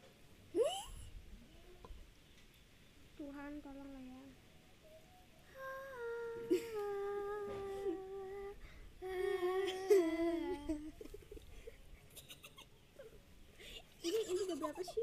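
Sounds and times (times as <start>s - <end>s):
girl humming: 0.6s - 1.9s, 4.9s - 11.2s.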